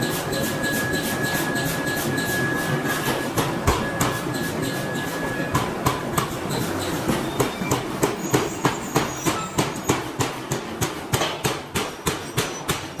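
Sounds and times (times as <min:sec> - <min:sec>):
industrial din: 0:00.0 - 0:10.2.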